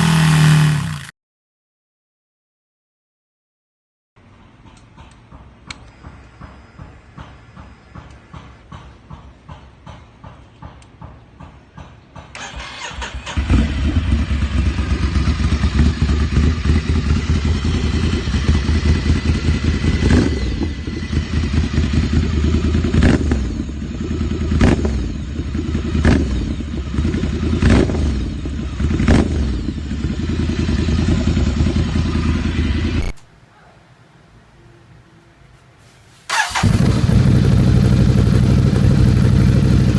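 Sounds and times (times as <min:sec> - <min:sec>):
motorcycle engine running loudly: 0:00.0 - 0:01.1, 0:13.4 - 0:33.1, 0:36.3 - 0:39.9
sharp exhaust cracks: 0:36.3 - 0:39.9.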